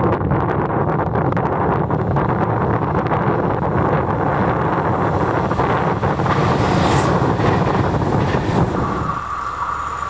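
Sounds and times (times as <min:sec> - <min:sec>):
passing train rumble: 0:00.0 - 0:10.0
distant train wheel squeal: 0:06.3 - 0:10.0.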